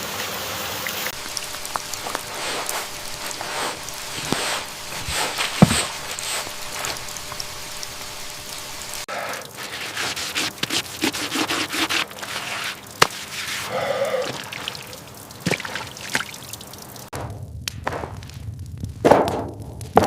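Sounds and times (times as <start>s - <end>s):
hands rubbing and scraping: 1.2s - 8.4s, 9.6s - 13.8s.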